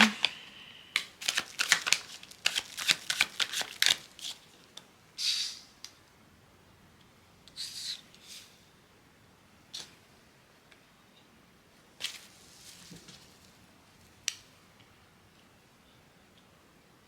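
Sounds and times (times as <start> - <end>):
cards snapping while shuffled: 1.0 - 4.4.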